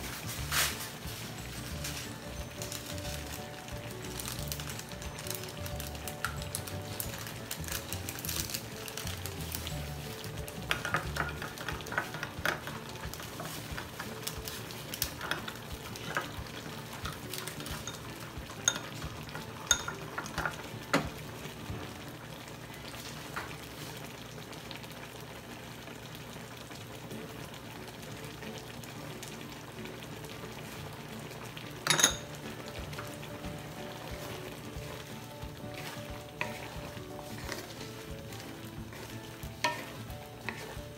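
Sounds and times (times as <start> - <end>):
seafood sizzling in a pan: 0.0 - 40.9
utensil clinking against pan: 17.1 - 21.1, 31.8 - 32.4, 39.6 - 40.8.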